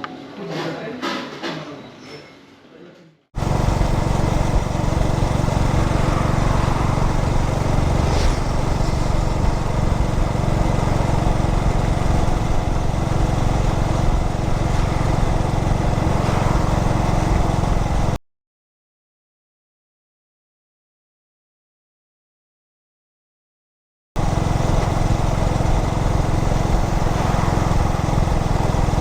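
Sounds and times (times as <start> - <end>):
motorcycle engine running: 3.4 - 18.2, 24.2 - 29.0.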